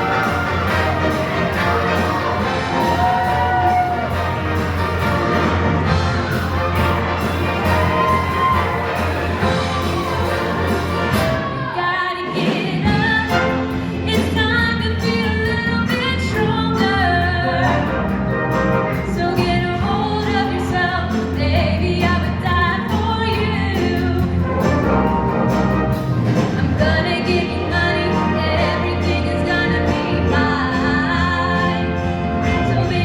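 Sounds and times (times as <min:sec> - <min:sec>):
backing band bass line: 0:00.0 - 0:11.8, 0:12.4 - 0:33.0
choir singing in harmony: 0:00.0 - 0:13.6, 0:26.6 - 0:33.0.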